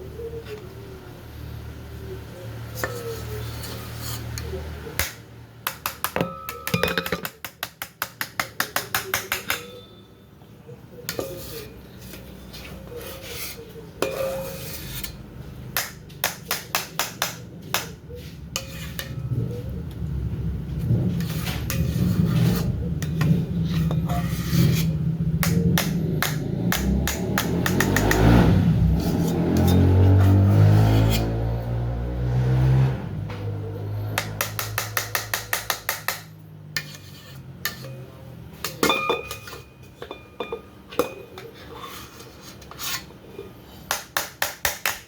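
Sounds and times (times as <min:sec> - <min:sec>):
utensil tapping a mixing bowl: 0:05.7 - 0:09.8.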